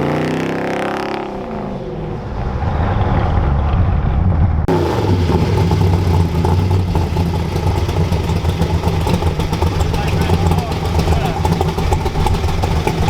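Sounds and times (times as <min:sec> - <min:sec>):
car engine running: 0:04.7 - 0:13.0.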